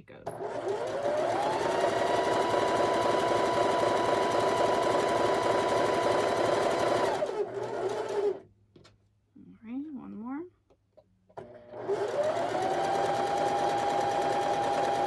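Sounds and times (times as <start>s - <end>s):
electric sewing machine stitching: 0.3s - 8.4s, 11.4s - 15.0s.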